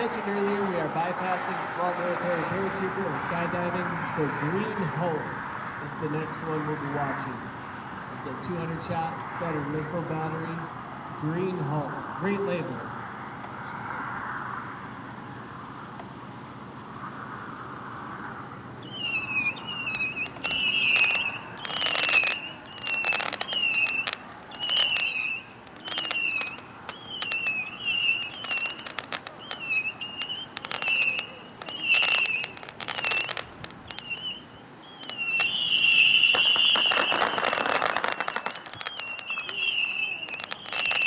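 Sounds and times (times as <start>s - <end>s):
rockets whistling: 0.0s - 41.0s
firework pops and crackle: 18.9s - 41.0s.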